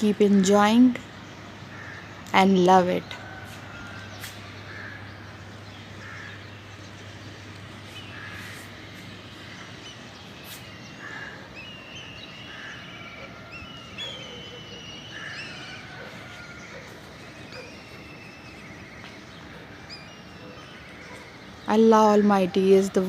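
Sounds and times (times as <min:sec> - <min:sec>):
outdoor hiss: 0:00.0 - 0:13.5
birds calling: 0:00.0 - 0:23.0
higher bird chirps and trills: 0:00.0 - 0:23.0.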